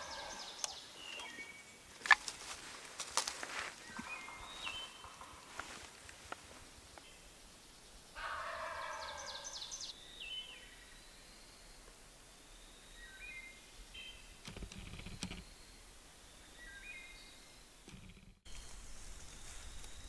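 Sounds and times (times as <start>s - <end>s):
songbirds chirping: 0.0s - 20.0s
turkey gobbling: 8.2s - 9.4s.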